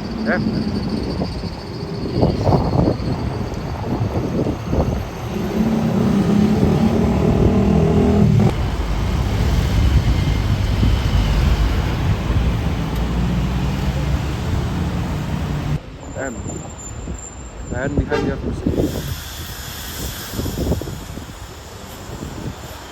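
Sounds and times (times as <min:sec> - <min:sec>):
traffic rumble: 0:00.0 - 0:22.8
loud vehicle engine passing: 0:05.2 - 0:15.8.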